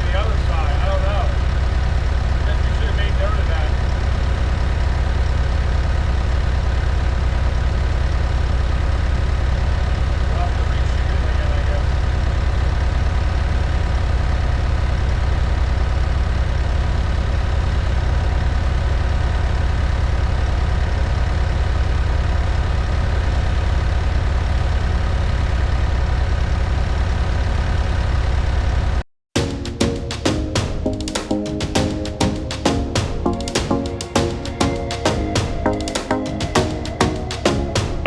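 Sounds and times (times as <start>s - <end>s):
drum-led music: 29.4s - 38.0s.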